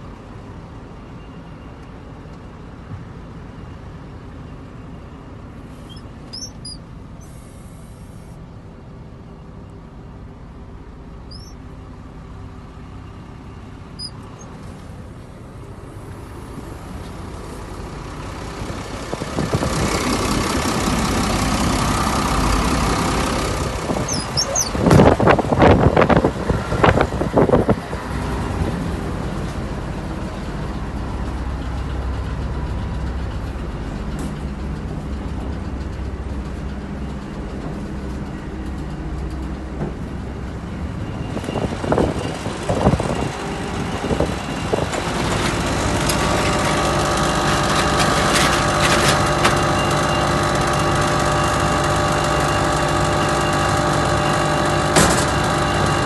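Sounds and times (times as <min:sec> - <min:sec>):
diesel truck engine idling: 0:00.0 - 0:56.0
machine running with whine: 0:13.4 - 0:56.0
clunks: 0:51.8 - 0:56.0.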